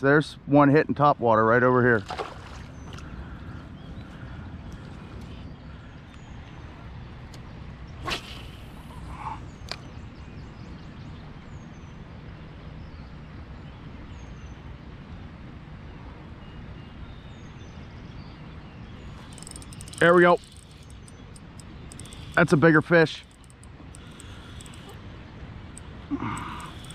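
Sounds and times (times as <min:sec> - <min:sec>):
fishing rod whipping through air: 0:08.0 - 0:09.2
sharp click: 0:19.2 - 0:25.0.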